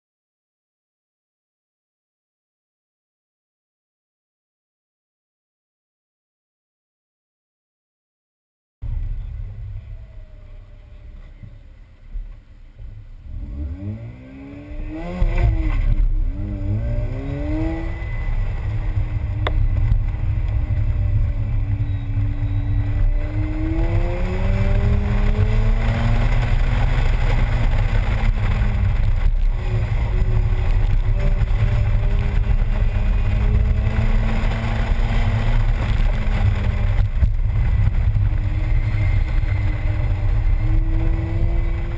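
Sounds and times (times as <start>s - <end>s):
rotary engine revving: 13.3s - 41.9s.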